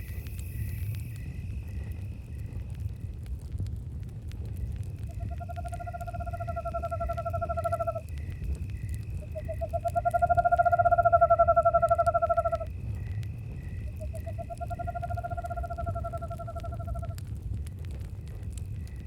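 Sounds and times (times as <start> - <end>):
crickets chirping: 0.0 - 3.4, 4.2 - 19.0
campfire crackling: 0.0 - 19.0
owl trilling: 13.9 - 17.1.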